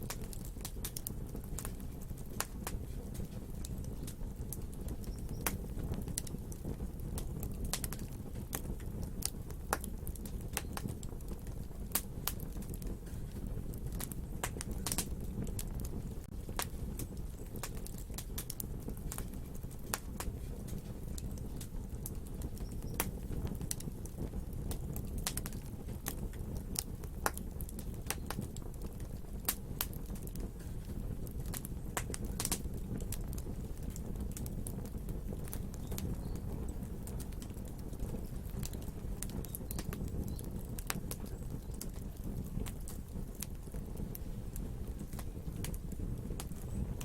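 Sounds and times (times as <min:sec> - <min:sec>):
low rumble of flames: 0:00.0 - 0:47.0
wood fire crackling and popping: 0:00.0 - 0:47.0.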